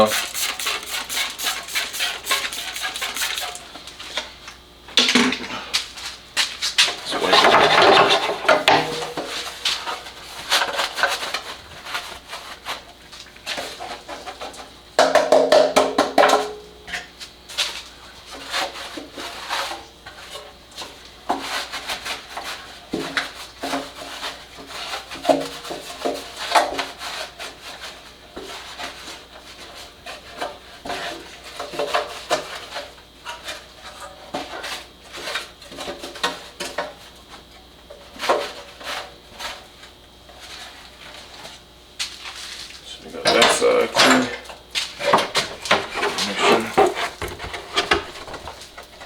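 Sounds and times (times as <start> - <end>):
plastic housing being scrubbed: 0.1 - 3.6, 45.0 - 49.0.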